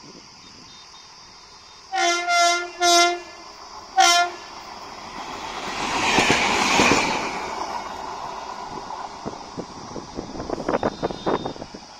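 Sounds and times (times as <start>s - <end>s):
train rushing on rails: 0.9s - 11.9s
train horn blast: 1.9s - 4.5s.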